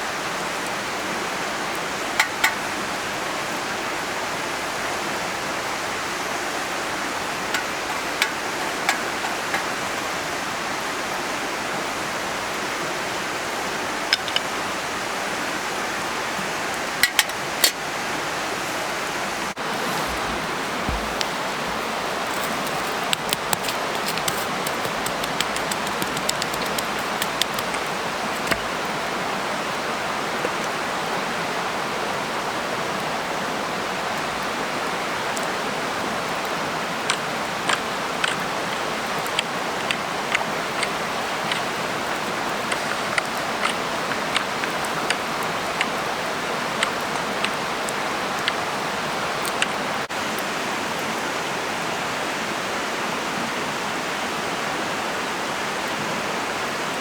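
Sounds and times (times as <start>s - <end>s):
campfire crackling and popping: 6.6s - 10.5s, 18.5s - 29.2s, 36.2s - 48.8s
fire hissing: 18.2s - 28.8s.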